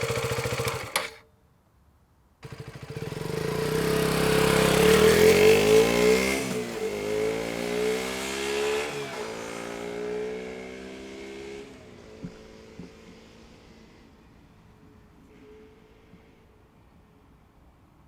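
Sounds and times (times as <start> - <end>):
motorcycle engine accelerating hard: 0.0 - 1.2, 2.4 - 14.1.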